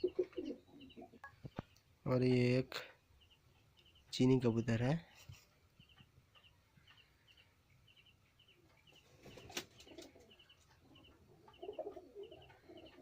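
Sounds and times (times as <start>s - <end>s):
pigeon cooing: 0.0s - 1.2s, 9.1s - 13.0s.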